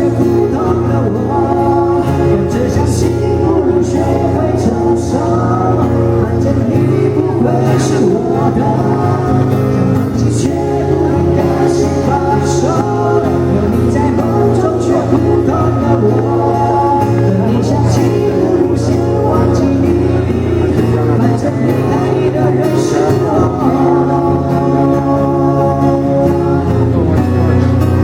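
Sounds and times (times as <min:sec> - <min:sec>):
live band playing pop ballad: 0:00.0 - 0:28.0.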